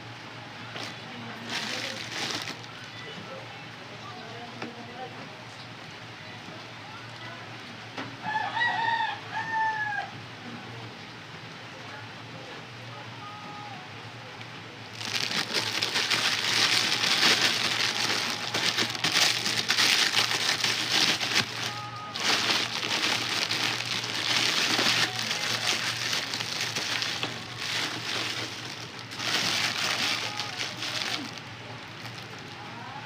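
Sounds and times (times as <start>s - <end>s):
plastic packaging crinkling: 0.7s - 3.0s, 14.9s - 32.6s.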